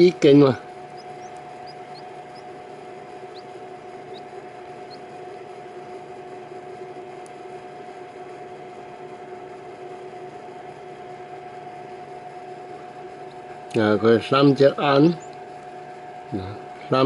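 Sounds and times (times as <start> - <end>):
baby birds peeping: 0.0 - 7.2, 14.4 - 15.7
electrical hum with hiss: 0.0 - 17.0.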